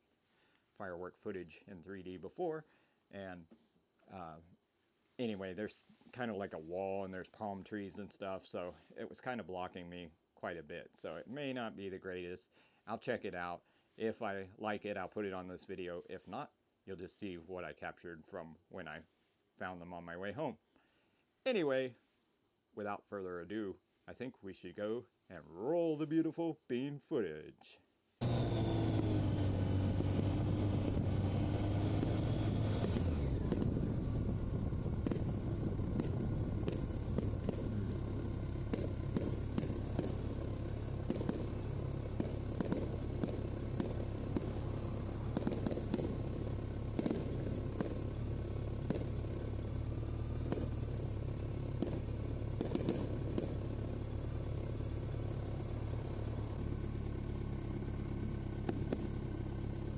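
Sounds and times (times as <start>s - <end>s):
distant fireworks popping: 28.2s - 59.9s
motorcycle engine idling: 28.2s - 59.9s.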